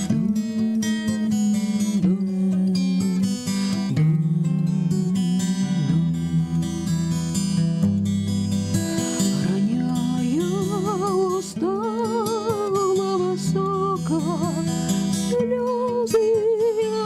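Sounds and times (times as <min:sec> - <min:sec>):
held low notes: 0:00.0 - 0:08.1
acoustic guitar playing: 0:00.0 - 0:17.0.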